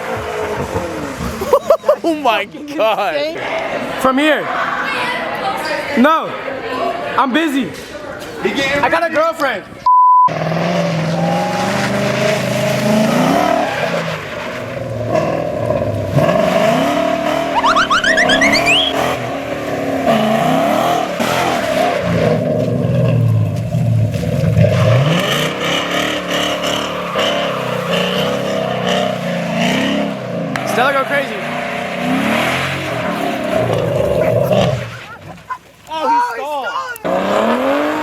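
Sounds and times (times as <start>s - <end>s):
car engines revving: 10.3s - 35.5s, 37.0s - 38.0s
whistle-like whine: 17.5s - 19.0s.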